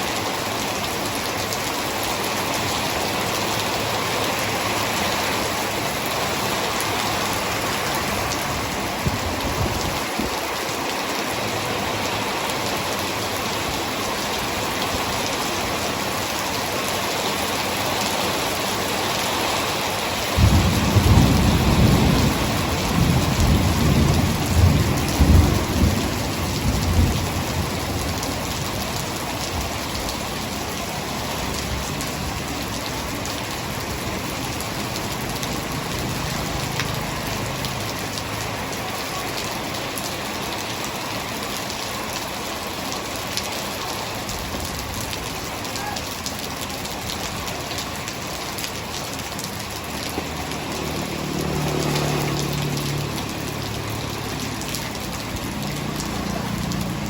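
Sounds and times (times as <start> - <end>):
heavy rain falling: 0.0 - 57.0
thunder rumbling: 20.2 - 30.4.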